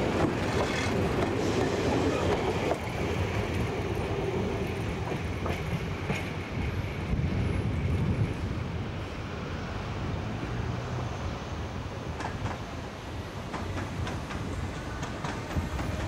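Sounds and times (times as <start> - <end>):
train rumbling: 0.0 - 16.0
wheels clicking over rail joints: 13.4 - 16.0.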